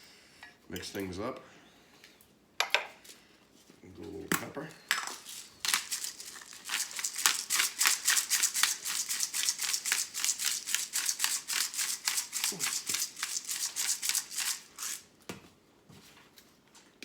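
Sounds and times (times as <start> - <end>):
pepper grinder grinding: 4.9 - 15.1.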